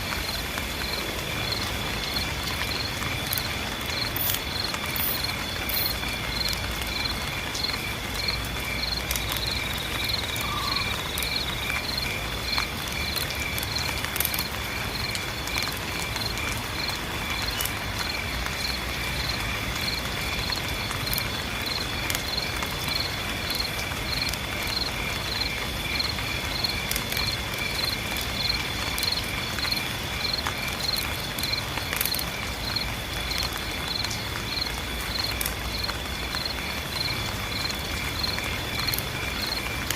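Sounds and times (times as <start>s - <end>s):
rain patter: 0.0s - 39.9s
pulsing insect chirp: 0.2s - 12.1s
insect trill: 0.2s - 39.9s.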